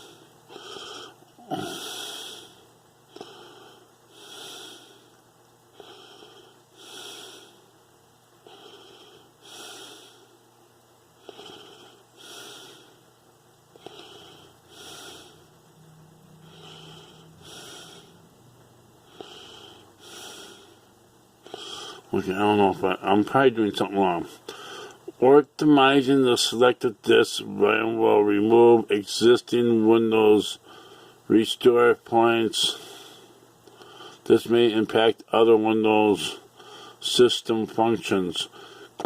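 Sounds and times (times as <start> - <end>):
person breathing: 0.0 - 7.7, 8.4 - 10.4, 11.2 - 13.1, 13.7 - 18.3, 19.0 - 22.1, 24.4 - 25.1, 30.6 - 31.2, 32.7 - 34.2, 36.5 - 37.0, 38.5 - 39.0.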